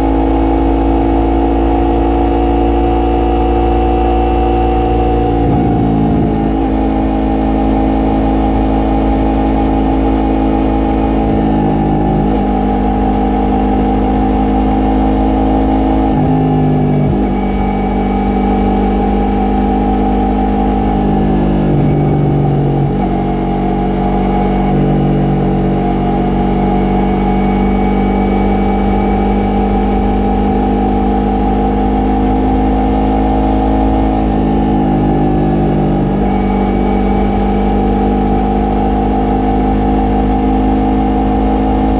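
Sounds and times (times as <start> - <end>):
motorcycle engine and exhaust: 0.0 - 41.9
wind and road noise: 1.6 - 32.4.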